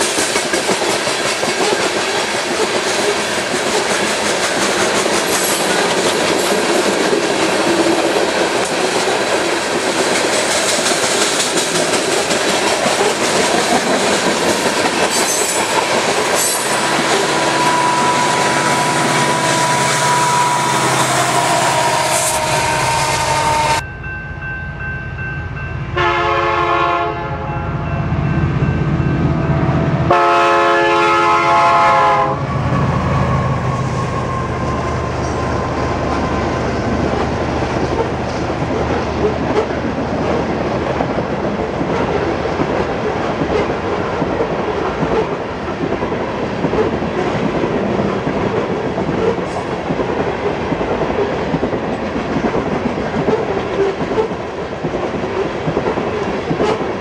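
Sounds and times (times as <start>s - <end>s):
freight train wheels clattering: 0.0s - 23.8s
diesel locomotives rumbling: 0.0s - 57.0s
train air horn blasts: 15.2s - 23.8s, 25.9s - 27.6s, 30.1s - 36.2s.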